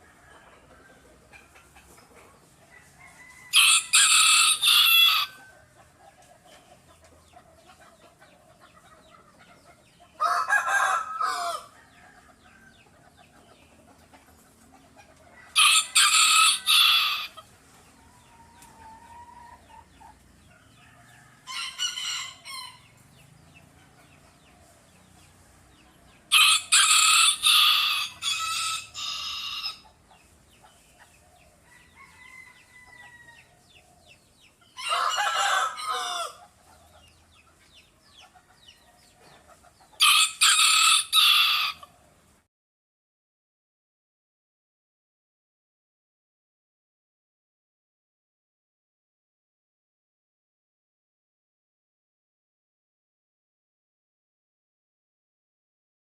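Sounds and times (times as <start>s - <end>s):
rooster crowing: 2.7s - 5.5s, 10.2s - 12.8s, 15.4s - 17.4s, 20.6s - 22.9s, 26.3s - 29.8s, 31.6s - 33.6s, 34.8s - 36.5s, 40.0s - 41.9s.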